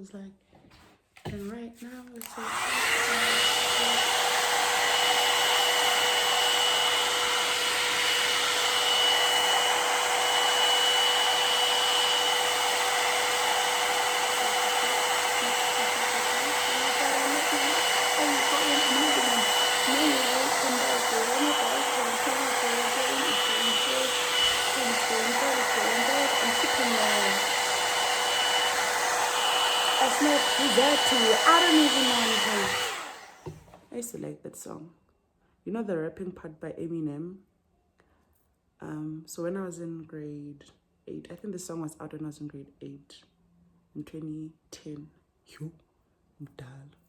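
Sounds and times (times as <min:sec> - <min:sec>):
hair dryer blowing: 0:02.2 - 0:33.8.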